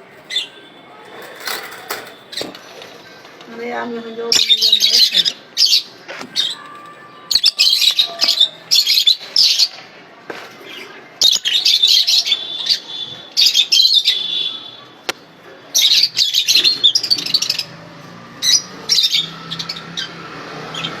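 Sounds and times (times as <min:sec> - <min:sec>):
lovebirds chattering: 0:00.0 - 0:09.8.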